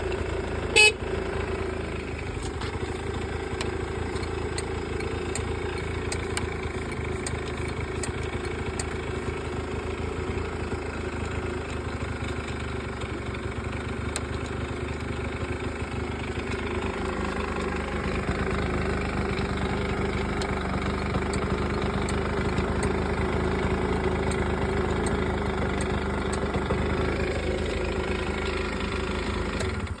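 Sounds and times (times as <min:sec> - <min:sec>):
scooter engine idling: 0:00.0 - 0:30.0.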